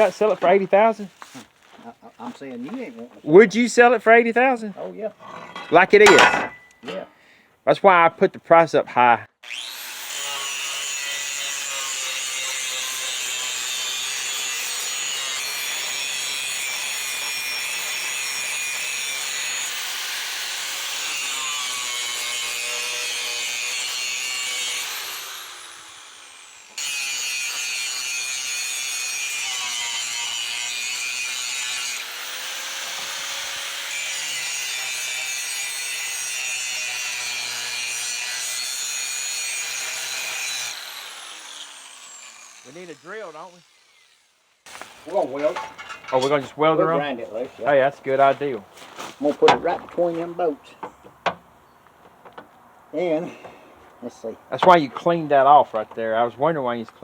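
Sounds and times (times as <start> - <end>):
angle grinder cutting steel: 9.4 - 47.2.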